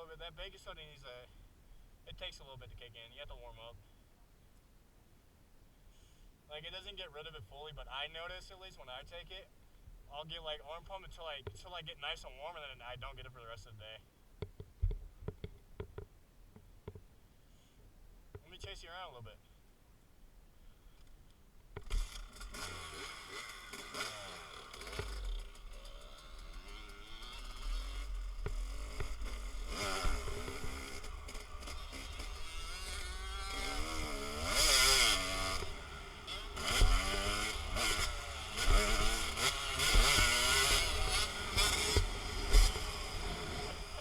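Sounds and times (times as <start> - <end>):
dirt bike engine revving: 21.9 - 44.0.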